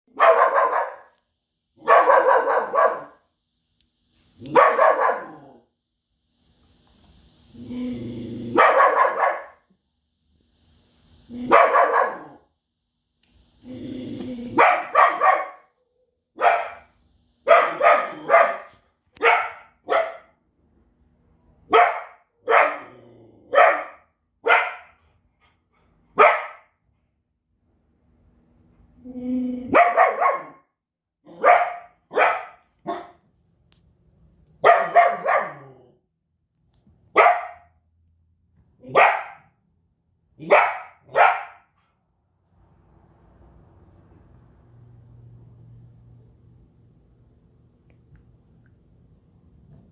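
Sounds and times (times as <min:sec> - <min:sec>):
dog barking loudly: 0:00.1 - 0:01.2, 0:01.8 - 0:03.2, 0:04.5 - 0:05.5, 0:08.5 - 0:09.6, 0:11.5 - 0:12.4, 0:14.6 - 0:15.7, 0:16.4 - 0:20.4, 0:21.7 - 0:25.0, 0:26.2 - 0:26.7, 0:29.7 - 0:30.7, 0:31.3 - 0:33.2, 0:34.6 - 0:35.7, 0:37.1 - 0:37.7, 0:38.9 - 0:39.5, 0:40.4 - 0:41.7.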